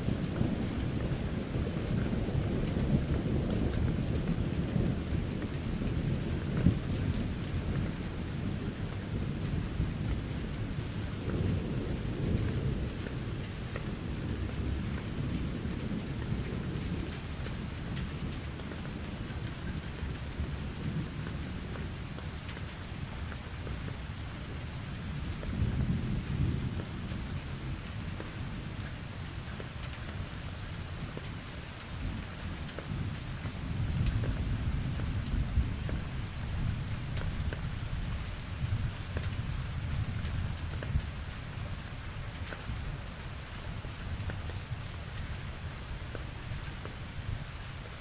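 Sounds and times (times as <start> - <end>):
heavy rain: 0.0 - 48.0
low rolling thunder: 0.0 - 48.0
drip ticks: 1.9 - 5.7, 6.5 - 8.1, 16.2 - 23.8, 27.8 - 36.0, 37.2 - 37.7, 39.1 - 41.4, 42.2 - 43.2, 44.2 - 44.6, 46.1 - 47.0.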